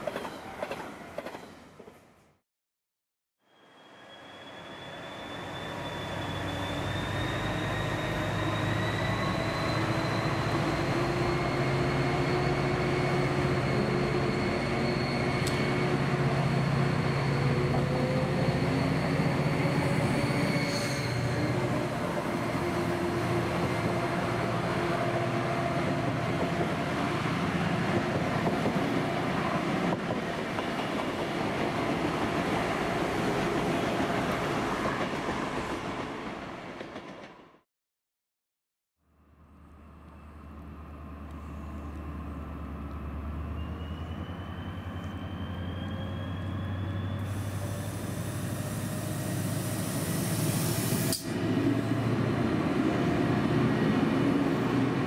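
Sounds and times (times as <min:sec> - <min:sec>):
diesel train engine: 0:03.9 - 0:30.2, 0:39.2 - 0:55.0.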